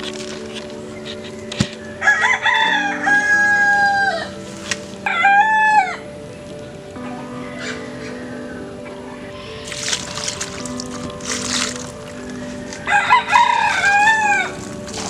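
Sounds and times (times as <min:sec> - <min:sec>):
rooster crowing: 0:02.0 - 0:04.3.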